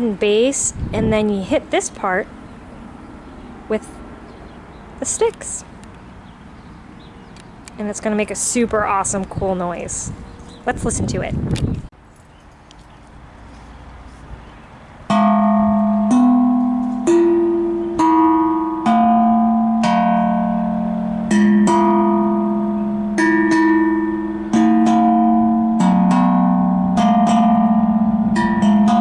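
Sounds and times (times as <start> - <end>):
tuned drum ringing notes: 15.1 - 29.0.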